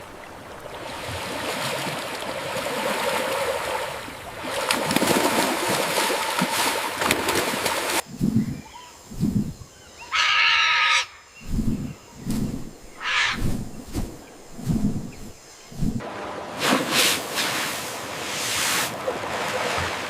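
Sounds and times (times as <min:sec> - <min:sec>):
river water rushing and splashing: 0:00.0 - 0:08.0, 0:12.4 - 0:20.0.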